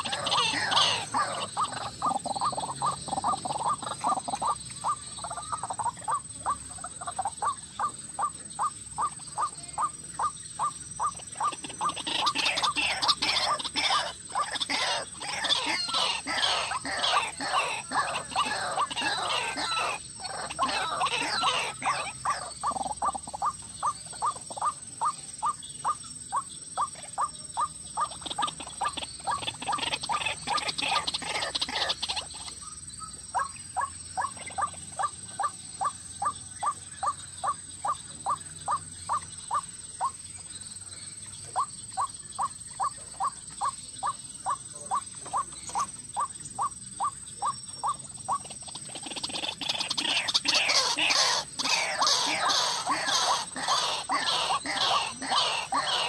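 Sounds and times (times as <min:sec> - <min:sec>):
waterhen calling: 0:00.0 - 0:40.2, 0:41.4 - 0:56.0.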